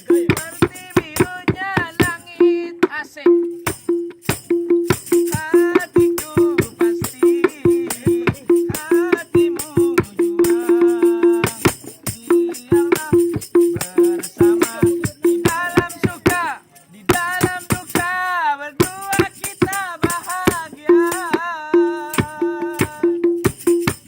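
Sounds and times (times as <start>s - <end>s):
frame drums and jingles: 0.0s - 24.0s
person singing melody: 5.1s - 23.4s.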